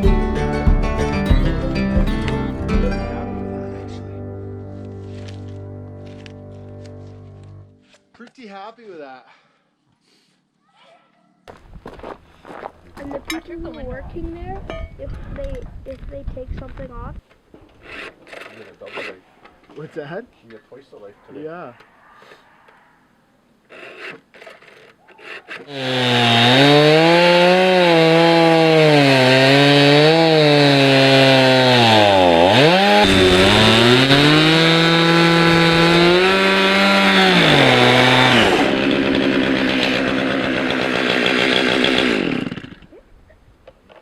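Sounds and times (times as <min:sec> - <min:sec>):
chainsaw cutting log: 0:17.8 - 0:19.2, 0:23.7 - 0:43.0.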